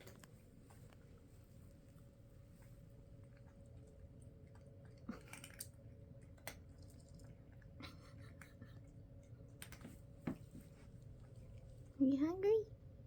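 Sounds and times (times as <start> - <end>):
cats crunching dry food: 0.0 - 12.0.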